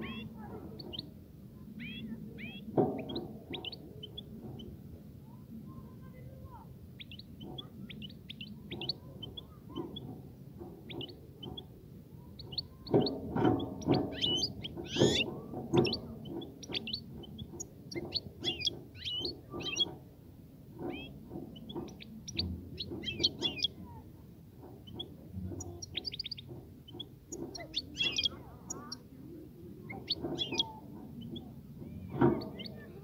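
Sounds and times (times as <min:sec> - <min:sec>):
goldfinch twittering song: 0:12.3 - 0:20.0, 0:20.9 - 0:23.8, 0:24.8 - 0:29.0, 0:29.8 - 0:31.5.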